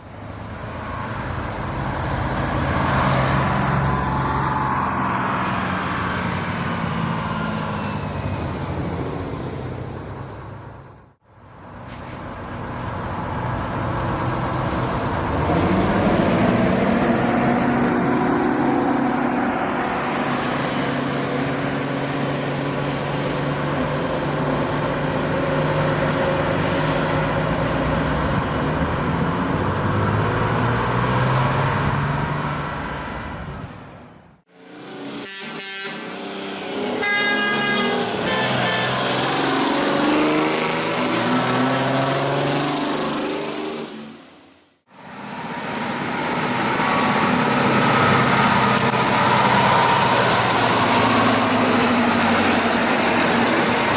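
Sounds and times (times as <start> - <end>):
truck engine revving: 13.7 - 32.9, 34.5 - 44.3, 45.0 - 53.9
horn-like tone: 35.2 - 36.1, 36.9 - 39.2.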